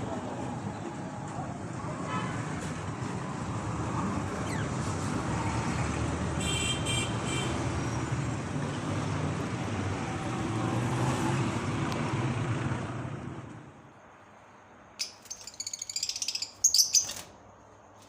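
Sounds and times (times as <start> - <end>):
road traffic rumble: 0.0 - 18.0
short high chirping or tooting: 15.0 - 17.3.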